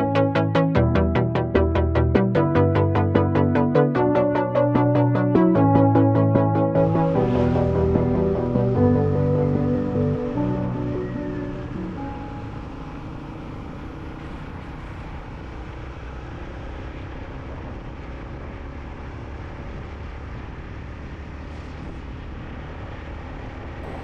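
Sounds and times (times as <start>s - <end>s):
motorcycle running: 5.9s - 22.6s
wind rush: 6.6s - 12.4s.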